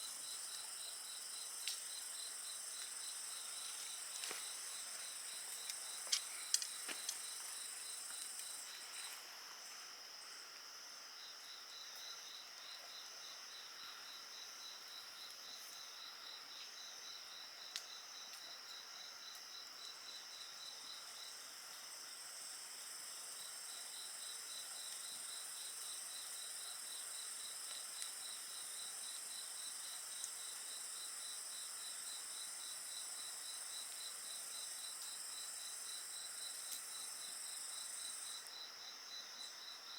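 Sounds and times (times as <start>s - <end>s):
crickets and insects chirping: 0.0s - 39.9s
wood fire crackling: 2.8s - 8.8s.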